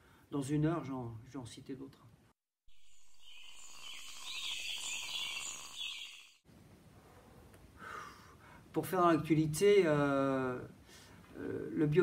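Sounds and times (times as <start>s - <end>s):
high thin chirping: 2.7s - 6.4s.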